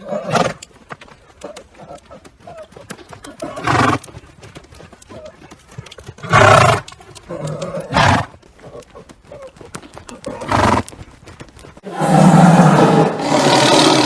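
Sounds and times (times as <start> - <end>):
hoof clops: 0.0 - 12.6
big cat roaring: 11.9 - 14.0.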